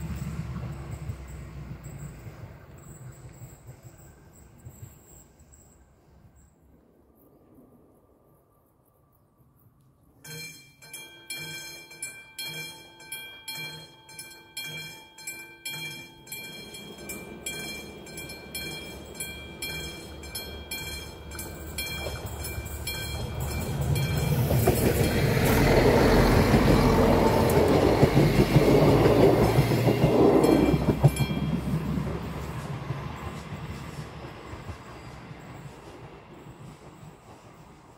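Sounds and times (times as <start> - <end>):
level-crossing warning bell: 0.0 - 6.0, 10.2 - 32.0
diesel railcar rumbling: 0.0 - 6.4, 10.3 - 37.9.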